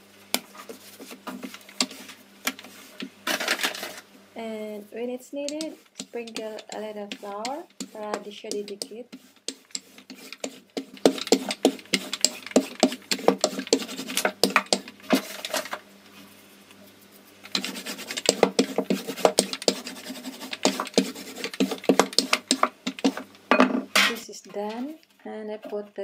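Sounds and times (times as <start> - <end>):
rolling pin rolling dough: 0.4 - 3.2, 5.4 - 15.8, 17.4 - 23.3.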